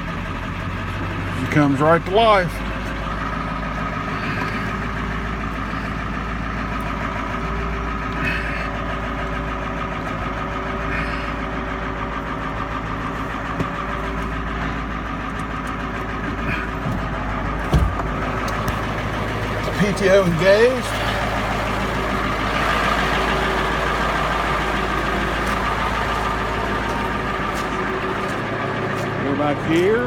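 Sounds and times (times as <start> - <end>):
diesel engine idling: 0.0 - 30.0
thump: 17.7 - 18.1.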